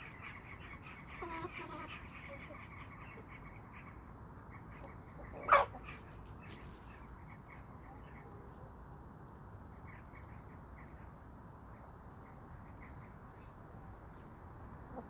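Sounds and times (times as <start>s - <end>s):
chickens clucking: 4.8s - 6.6s
chicken squawk: 5.2s - 6.0s.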